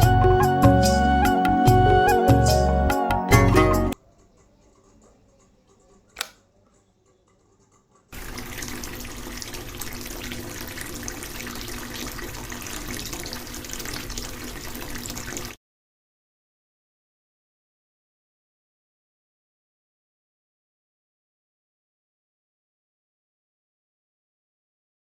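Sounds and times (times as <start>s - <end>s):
click: 6.2s - 6.4s.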